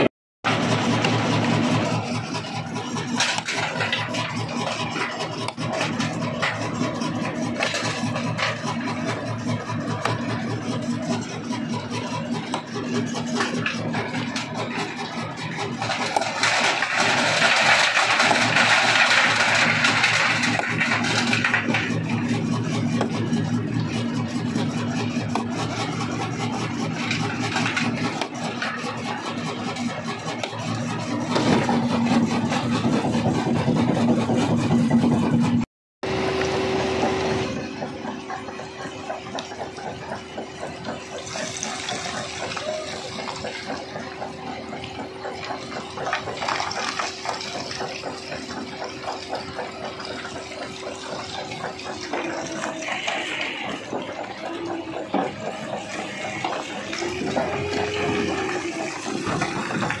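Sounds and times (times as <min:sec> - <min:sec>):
rock crusher humming: 0:00.0 - 1:00.0.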